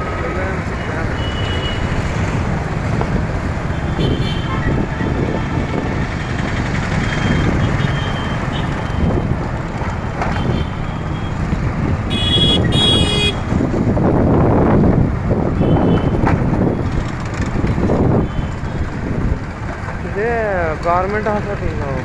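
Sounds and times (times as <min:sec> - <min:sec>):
road traffic rumble: 0:00.0 - 0:22.0
wind: 0:00.0 - 0:22.0
vehicle horn toots: 0:00.8 - 0:02.0, 0:03.8 - 0:04.8, 0:10.3 - 0:11.3, 0:12.1 - 0:13.5, 0:15.6 - 0:16.2.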